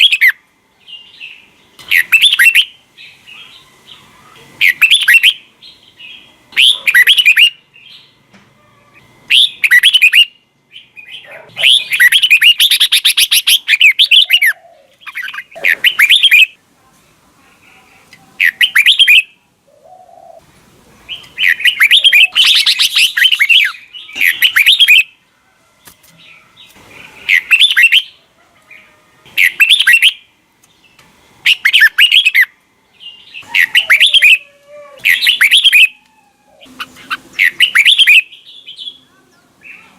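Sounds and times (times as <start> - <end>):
fast bird chattering: 1.8 - 2.7, 4.6 - 5.4, 6.6 - 7.6, 9.3 - 10.3, 11.0 - 16.6, 18.4 - 19.3, 21.1 - 25.1, 27.2 - 28.2, 29.4 - 30.2, 31.4 - 32.5, 33.4 - 34.4, 35.1 - 36.0, 36.7 - 39.0
bulbul warbling: 33.4 - 36.0.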